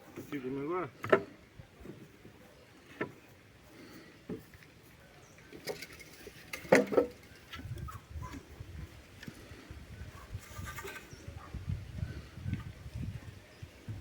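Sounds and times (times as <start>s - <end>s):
wood knocking and clattering: 1.0s - 2.1s, 5.5s - 7.8s.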